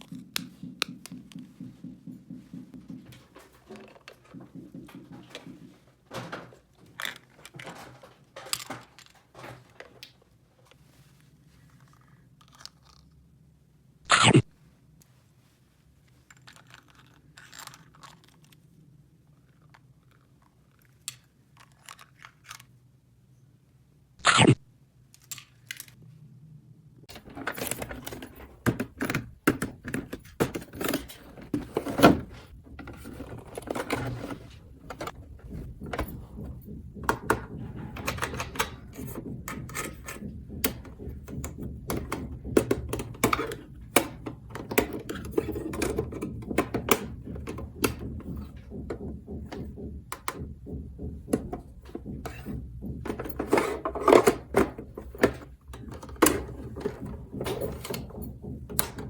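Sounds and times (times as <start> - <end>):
low steady hum: 26.0 - 59.0.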